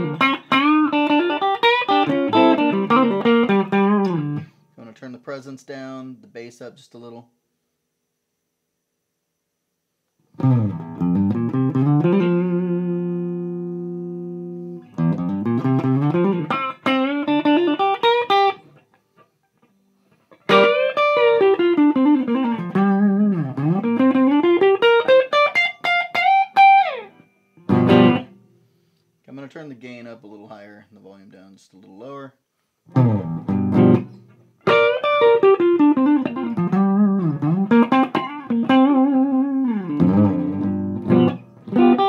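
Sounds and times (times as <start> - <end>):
distorted electric guitar playing: 0.0 - 4.5, 10.4 - 18.9, 20.4 - 28.4, 32.9 - 42.0.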